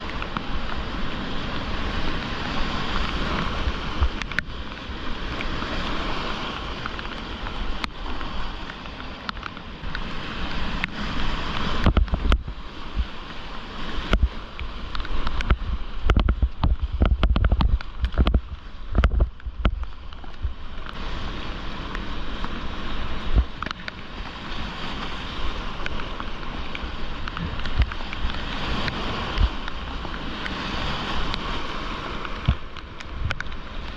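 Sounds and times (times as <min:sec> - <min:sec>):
whitewater river rushing: 0:00.0 - 0:33.9
heavy thumps and knocks on camera: 0:11.8 - 0:13.1, 0:14.1 - 0:14.4, 0:15.3 - 0:20.5.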